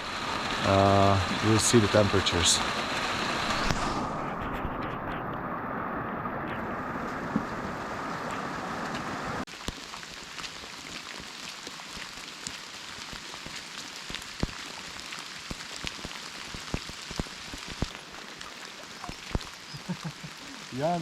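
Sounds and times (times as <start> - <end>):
raindrops ticking close by: 0.0 - 3.7, 7.3 - 21.0
steady rain falling: 0.0 - 21.0.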